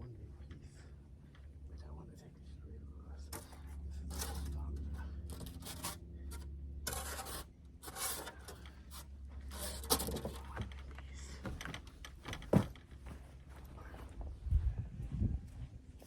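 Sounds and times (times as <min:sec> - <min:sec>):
low steady hum: 0:00.0 - 0:16.0
handling rustles: 0:08.0 - 0:14.4.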